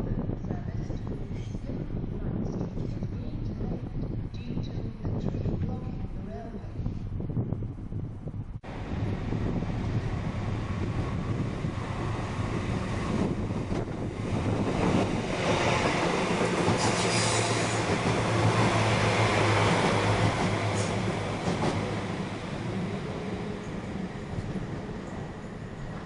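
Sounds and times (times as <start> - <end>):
train running on rails: 8.3 - 26.0.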